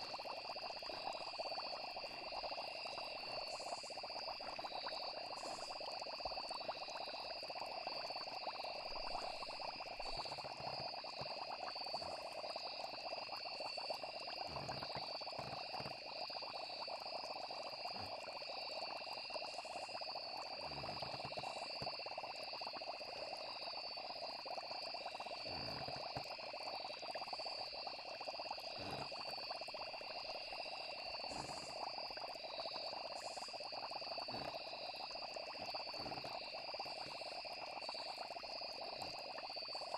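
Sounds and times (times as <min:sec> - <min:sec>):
frogs croaking: 0:00.0 - 0:39.9
insects trilling: 0:00.0 - 0:39.9.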